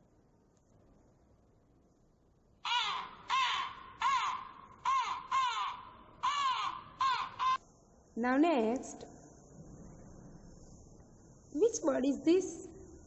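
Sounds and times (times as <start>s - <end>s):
crow cawing: 2.6s - 7.6s.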